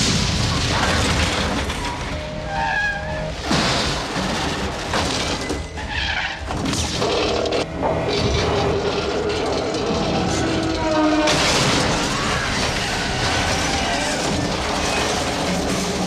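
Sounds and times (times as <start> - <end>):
heavy booms and crashes: 0.0 - 2.1.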